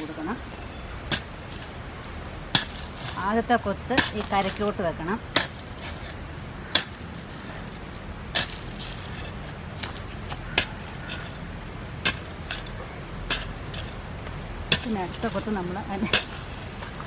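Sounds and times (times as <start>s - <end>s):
hoe scraping soil: 0.0s - 14.0s, 14.7s - 17.0s
hoe chopping into soil: 2.5s - 4.7s, 8.3s - 11.4s, 12.0s - 14.0s.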